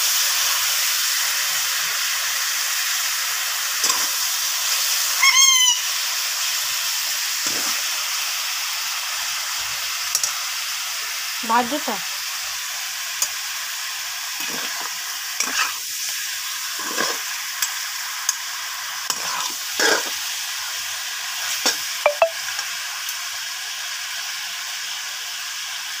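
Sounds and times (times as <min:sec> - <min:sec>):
chicken sizzling in a wok: 0:00.0 - 0:26.0
metal spatula scraping a pan: 0:03.8 - 0:04.2, 0:07.4 - 0:07.8, 0:14.4 - 0:15.8, 0:16.7 - 0:17.8, 0:19.1 - 0:20.2.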